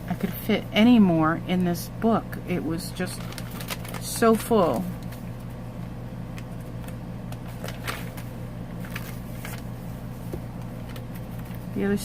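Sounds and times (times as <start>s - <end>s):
steady low hum: 0.0s - 12.0s
paper pages rustling: 3.1s - 5.3s, 6.5s - 9.7s, 10.8s - 11.7s.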